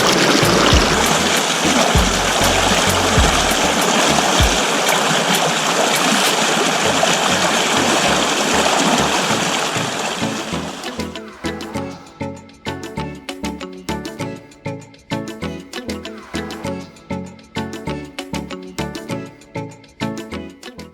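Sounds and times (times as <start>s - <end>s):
music with a steady beat: 0.0s - 5.0s
creek water rushing: 0.0s - 11.0s.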